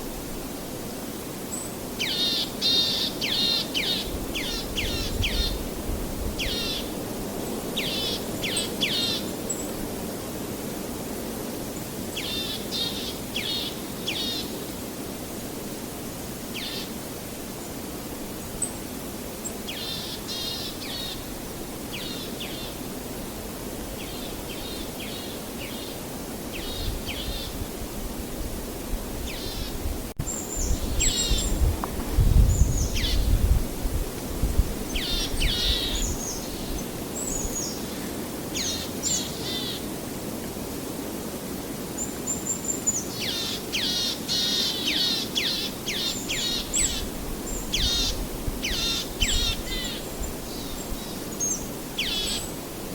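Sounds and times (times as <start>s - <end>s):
outdoor hiss: 0.0s - 52.9s
songbirds chirping: 34.8s - 39.9s.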